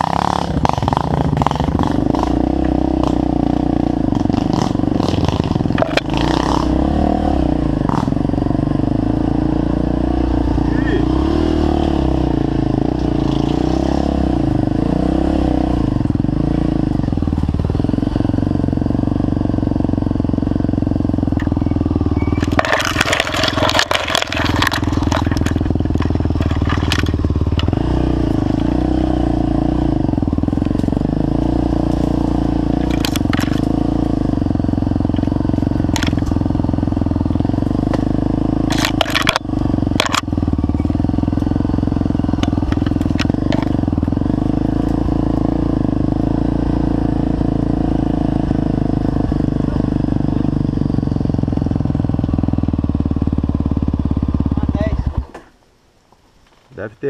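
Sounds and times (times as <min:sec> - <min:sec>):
motorcycle engine running: 0:00.0 - 0:55.6
crackling and clattering bursts: 0:05.0 - 0:06.3, 0:22.3 - 0:27.8, 0:32.8 - 0:33.8, 0:38.6 - 0:40.3, 0:42.4 - 0:44.1.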